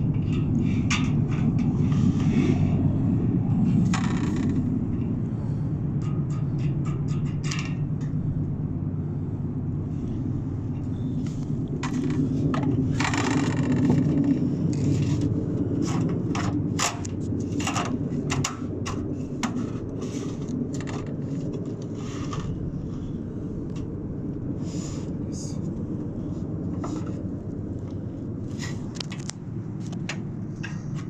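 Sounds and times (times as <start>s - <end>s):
low rumble: 0.0s - 31.0s
sheet metal scraping and clicking: 6.0s - 8.1s, 11.8s - 22.6s.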